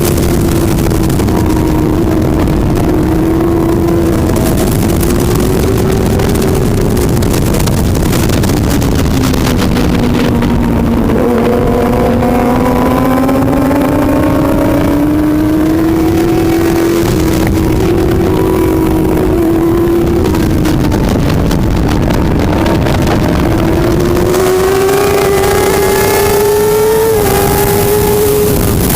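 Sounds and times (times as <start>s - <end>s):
loud rushing noise: 0.0s - 28.9s
motorcycle engine at speed: 0.0s - 28.9s.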